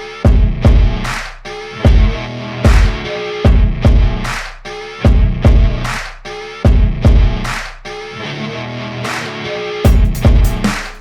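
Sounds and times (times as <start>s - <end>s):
deep bass pulse: 0.3s - 1.1s, 1.9s - 4.3s, 5.1s - 5.9s, 6.7s - 7.5s
heavy drum hits: 1.9s - 4.1s, 9.9s - 10.8s.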